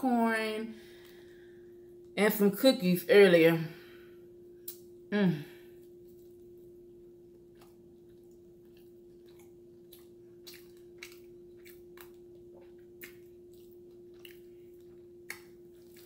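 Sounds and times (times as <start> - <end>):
faint steady hum: 0.0 - 16.0
person chewing: 7.5 - 16.0.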